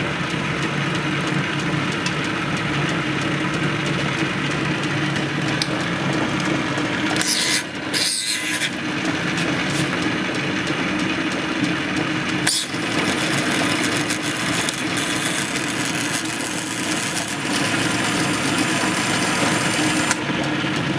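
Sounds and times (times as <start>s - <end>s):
industrial sewing machine running: 9.0s - 20.9s.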